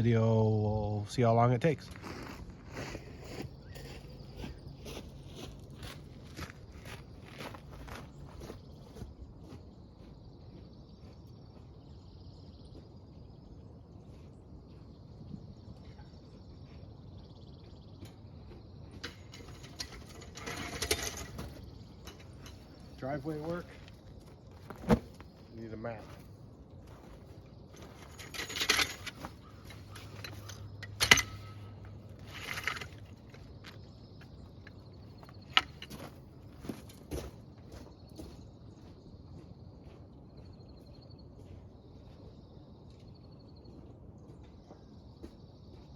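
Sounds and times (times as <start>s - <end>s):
insect chirring: 0.0s - 39.6s
sharp metallic clank: 19.0s - 23.6s, 28.0s - 33.1s
small metal objects jangling: 19.0s - 23.9s, 27.8s - 33.8s.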